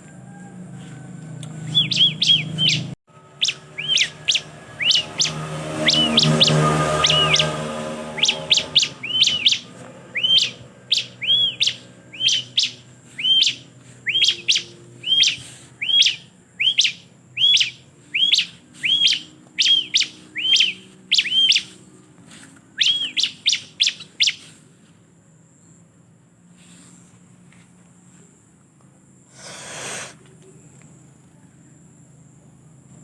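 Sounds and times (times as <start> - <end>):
bird chirping: 0.9 - 21.9, 22.7 - 24.6.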